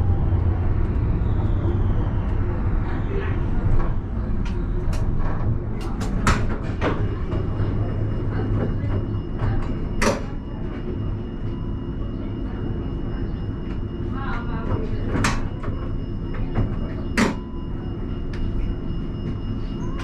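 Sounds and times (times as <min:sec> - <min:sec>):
tram rumble: 0:00.0 - 0:20.0.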